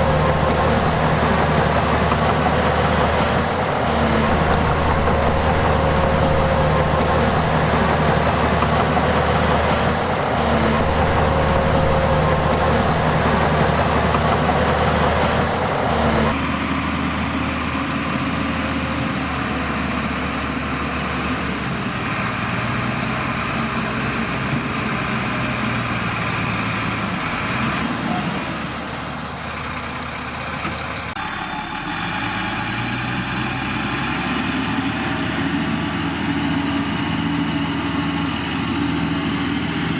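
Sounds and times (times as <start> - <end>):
heavy diesel engines droning: 0.0 - 39.9.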